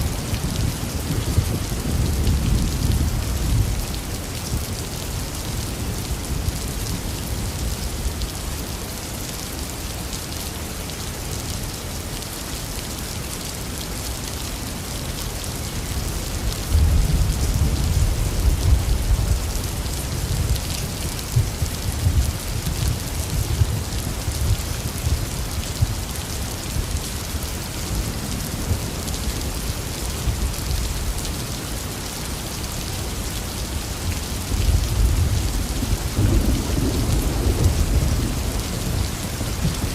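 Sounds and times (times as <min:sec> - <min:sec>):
intense rain: 0:00.0 - 0:39.9
thunder rumbling: 0:35.0 - 0:39.9.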